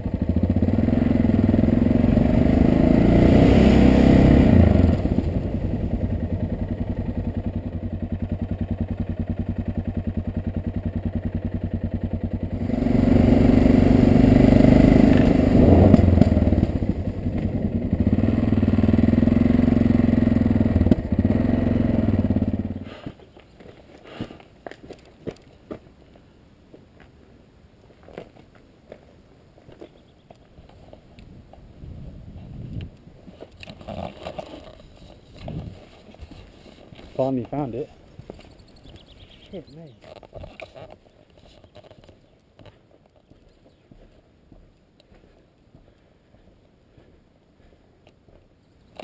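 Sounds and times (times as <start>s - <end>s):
motorcycle engine running: 0.0s - 23.2s, 33.6s - 42.0s.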